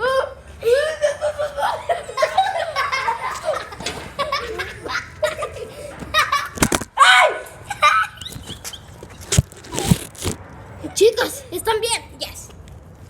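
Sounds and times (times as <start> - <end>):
group of people laughing: 0.0 - 6.8, 7.5 - 8.6
high cry: 4.4 - 8.3.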